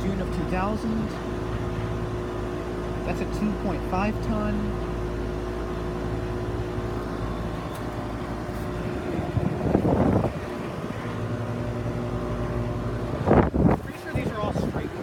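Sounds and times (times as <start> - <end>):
air conditioner units humming: 0.0 - 15.0
wind on microphone: 8.9 - 11.6, 13.0 - 15.0.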